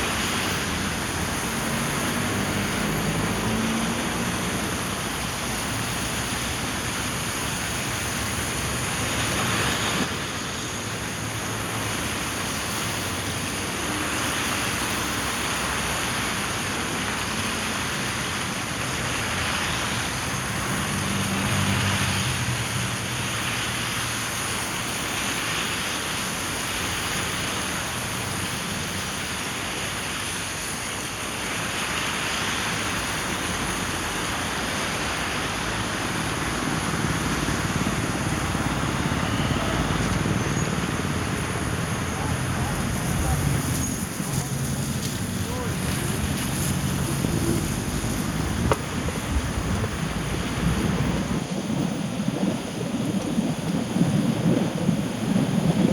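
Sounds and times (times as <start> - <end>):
car driving in rain: 0.0 - 55.9
low engine hum: 33.2 - 55.9.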